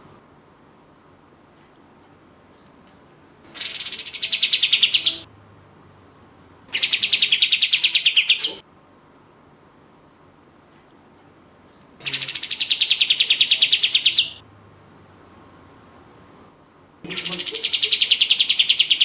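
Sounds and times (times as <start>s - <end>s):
bird rattling song: 3.5s - 5.2s, 6.7s - 8.6s, 11.7s - 14.4s, 17.1s - 19.0s.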